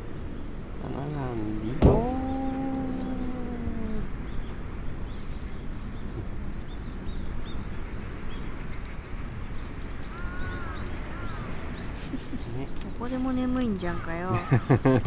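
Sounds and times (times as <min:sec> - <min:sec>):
low outdoor rush: 0:00.0 - 0:15.0
small birds chirping: 0:00.0 - 0:15.0.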